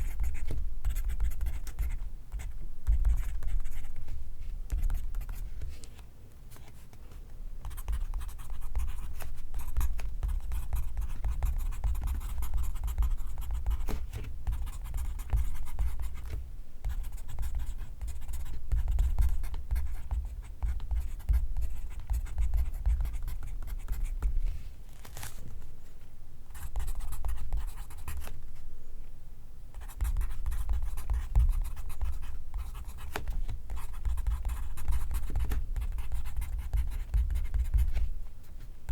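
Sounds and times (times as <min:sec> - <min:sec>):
pencil scratching on paper: 0:29.8 - 0:38.1.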